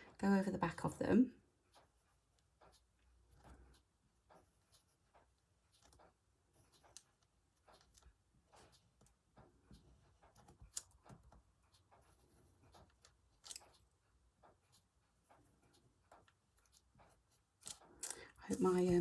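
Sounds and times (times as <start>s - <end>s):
pen scratching on paper: 4.3s - 5.2s.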